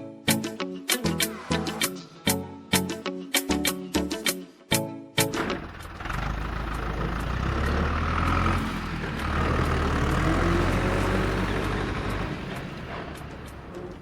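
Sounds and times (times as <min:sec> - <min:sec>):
heavy vehicle engine rumbling: 0:05.4 - 0:14.0.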